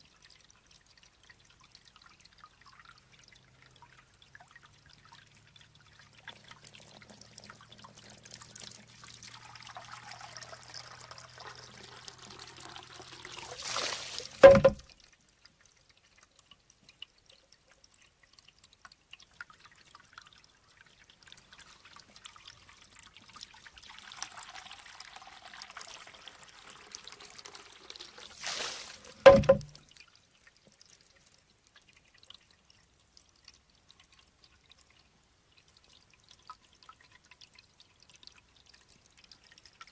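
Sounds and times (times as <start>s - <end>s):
faint water dripping: 0.0s - 39.9s
water trickling and pouring: 0.0s - 39.9s
bamboo tube knocking on stone: 14.4s - 14.9s, 29.2s - 29.8s.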